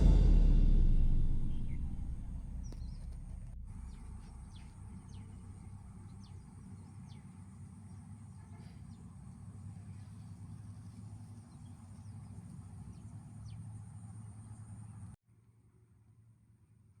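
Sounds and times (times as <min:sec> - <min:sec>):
low rumble: 0:00.0 - 0:07.9
faint outdoor background noise: 0:00.0 - 0:17.0.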